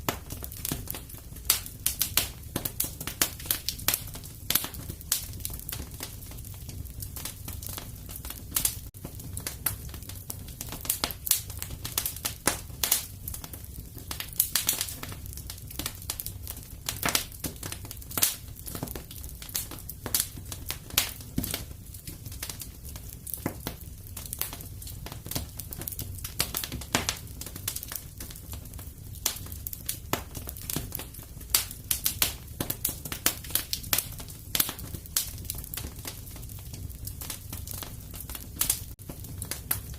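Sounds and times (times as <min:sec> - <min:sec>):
fire low rumble: 0:00.0 - 0:39.9
wood fire crackling and popping: 0:00.0 - 0:39.9.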